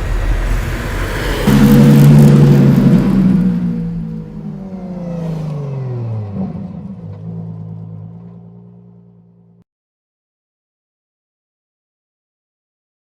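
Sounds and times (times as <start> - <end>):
sports car engine revving: 0.0 - 9.6.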